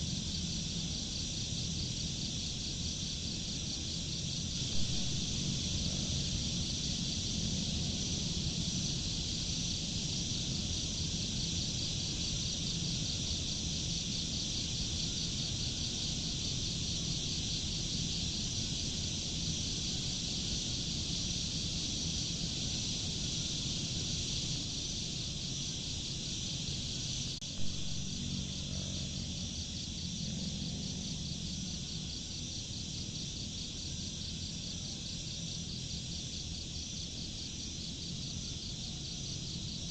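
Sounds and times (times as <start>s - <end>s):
low steady rumble: 0.0s - 17.0s, 18.2s - 34.0s
crickets and insects chirring: 0.0s - 39.9s
faint pulsed trill: 4.6s - 10.0s, 26.8s - 31.8s.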